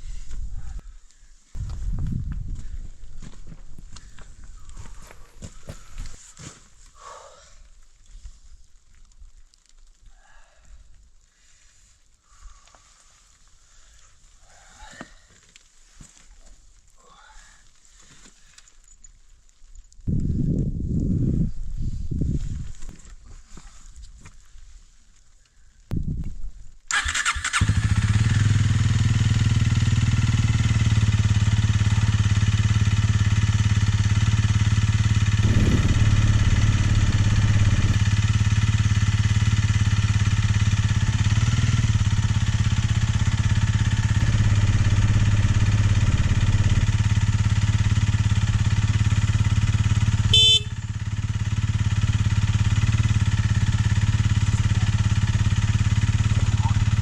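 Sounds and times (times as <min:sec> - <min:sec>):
motorcycle engine starting and running: 0:26.9 - 0:57.0.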